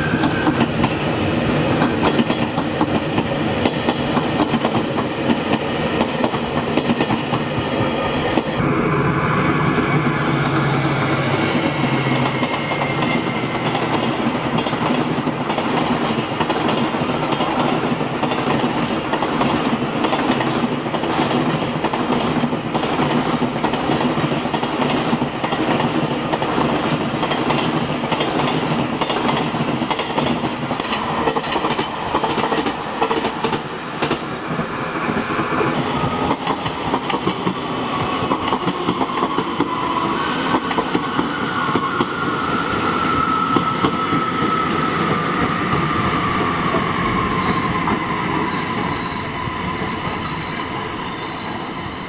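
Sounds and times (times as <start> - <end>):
passenger express train passing: 0.0 - 52.0
high wheel squeal: 8.5 - 14.2, 37.6 - 40.5, 41.2 - 52.0.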